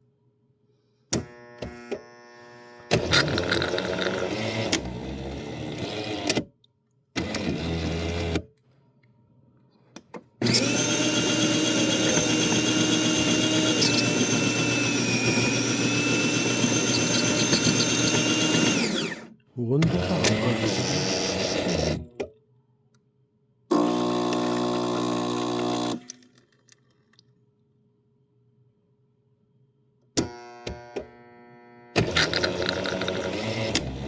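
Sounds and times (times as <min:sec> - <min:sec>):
coffee grinder motor running: 0:01.2 - 0:06.4, 0:10.4 - 0:22.0, 0:23.7 - 0:26.2, 0:30.2 - 0:34.0.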